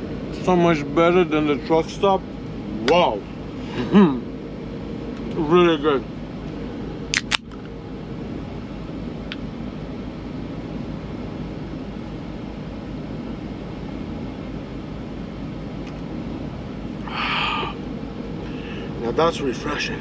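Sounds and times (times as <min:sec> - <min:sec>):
idling truck hum: 0:13.6 - 0:20.0.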